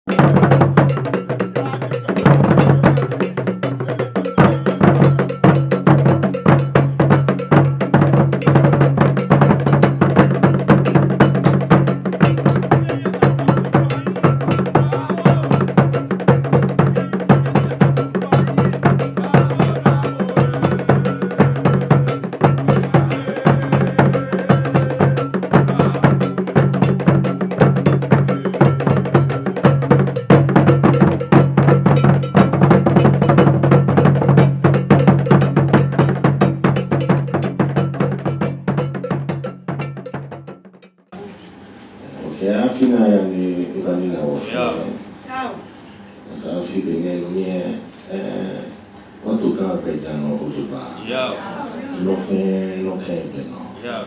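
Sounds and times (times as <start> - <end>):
bell and wood-block strikes: 0.1 - 41.0.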